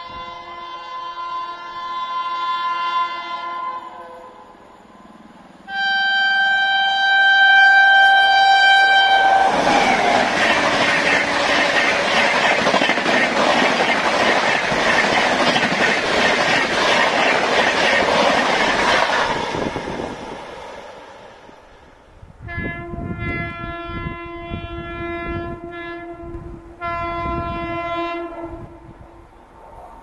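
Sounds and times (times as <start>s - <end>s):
locomotive horn blast: 0.0s - 4.5s, 5.7s - 11.8s, 22.4s - 28.9s
train wheels clattering on rails: 9.4s - 20.7s.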